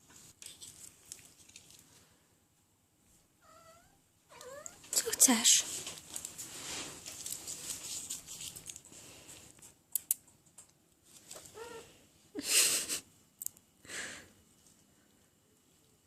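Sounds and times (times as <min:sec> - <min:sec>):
rustling: 0:00.0 - 0:02.3, 0:04.4 - 0:09.8, 0:11.0 - 0:11.9.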